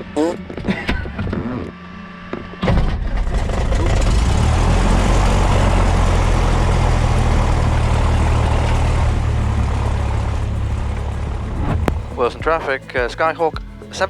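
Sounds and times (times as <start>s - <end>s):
light aircraft engine and propeller: 1.8s - 13.0s.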